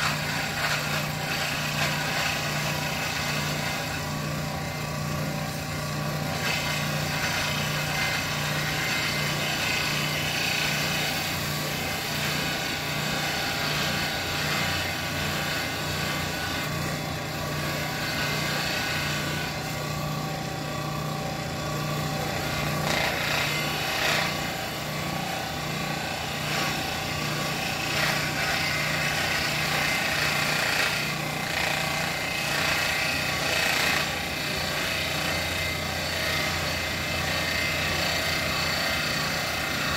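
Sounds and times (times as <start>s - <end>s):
power tool motor hum: 0.0s - 39.9s
rough grinding and rubbing: 0.0s - 39.9s.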